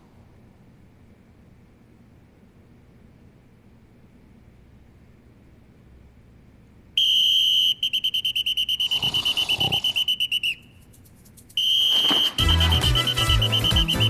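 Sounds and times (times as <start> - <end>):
pea whistle blast and trill: 7.0 - 10.7, 11.6 - 14.0.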